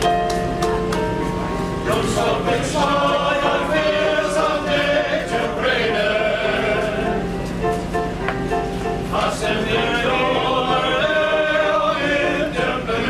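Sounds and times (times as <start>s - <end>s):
male chorus singing in harmony: 1.8s - 7.4s, 9.0s - 13.0s.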